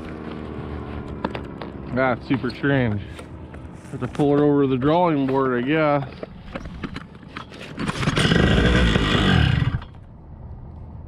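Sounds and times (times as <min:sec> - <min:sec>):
paramotor engine starting and dying: 0:07.6 - 0:10.0.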